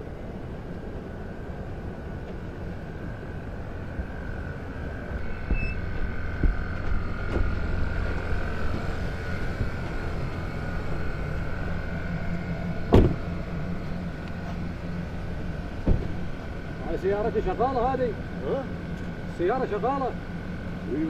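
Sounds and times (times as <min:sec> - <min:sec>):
car engine running: 0:00.4 - 0:21.0
loud thump: 0:12.9 - 0:13.3, 0:15.8 - 0:16.2.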